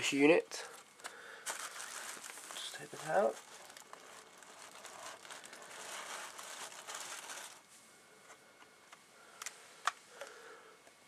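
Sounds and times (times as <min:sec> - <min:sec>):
packaging rustling: 0:01.0 - 0:07.7.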